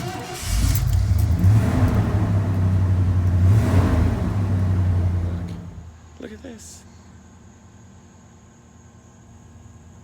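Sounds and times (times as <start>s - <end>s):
vehicle engine rumbling: 0.0s - 6.1s.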